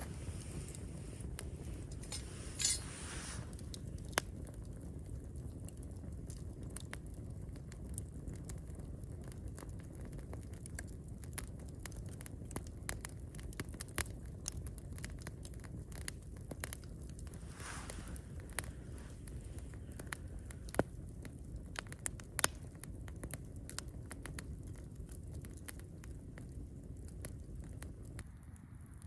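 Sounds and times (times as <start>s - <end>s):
steady low rumble: 0.0s - 4.1s
campfire crackling: 0.0s - 29.0s.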